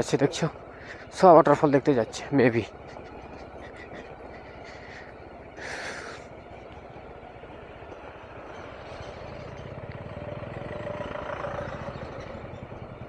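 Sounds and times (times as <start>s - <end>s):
motorcycle engine braking: 8.3s - 13.0s.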